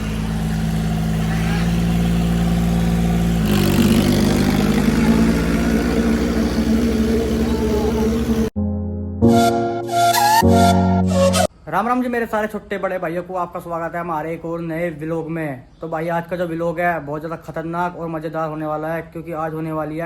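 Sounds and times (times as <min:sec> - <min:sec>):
tractor diesel engine running hard: 0:00.0 - 0:08.6.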